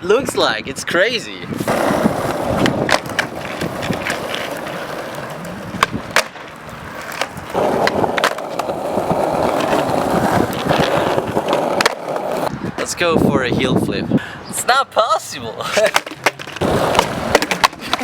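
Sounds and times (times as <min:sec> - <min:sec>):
skateboard wheels rolling: 0:01.5 - 0:12.9, 0:15.6 - 0:18.0
skateboard clicks and knocks: 0:01.6 - 0:12.5, 0:15.7 - 0:18.0.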